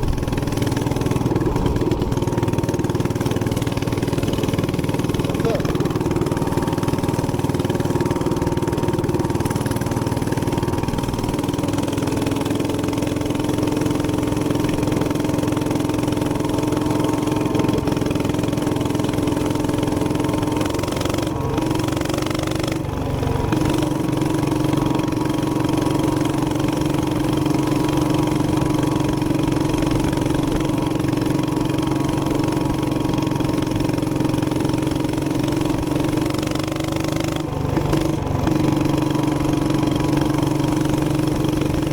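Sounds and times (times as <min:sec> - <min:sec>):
minibike engine running: 0:00.0 - 0:41.9.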